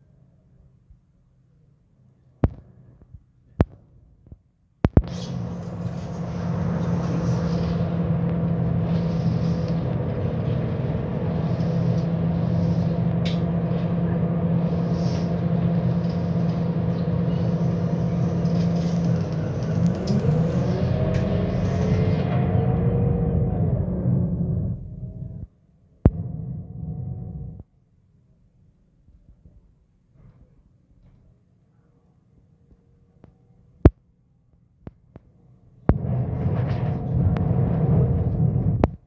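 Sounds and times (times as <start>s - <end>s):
bus engine running: 5.0s - 25.5s, 26.1s - 27.6s, 35.9s - 39.0s
rising gearbox whine: 5.0s - 25.5s, 26.1s - 27.6s, 35.9s - 39.0s.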